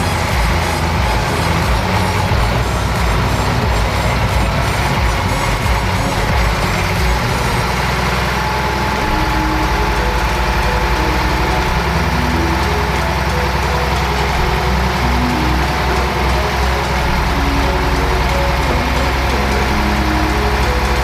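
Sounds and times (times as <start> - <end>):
heavy diesel engine idling: 0.0 - 21.0.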